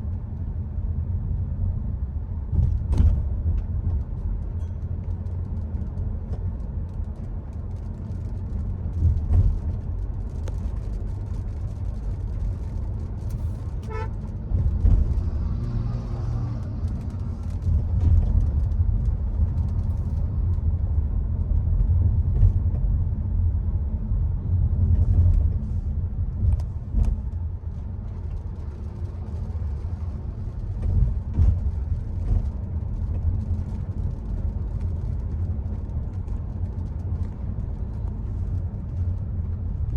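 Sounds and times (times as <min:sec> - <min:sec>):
car engine and road noise: 0:00.0 - 0:39.9
car horn toot: 0:13.9 - 0:14.2.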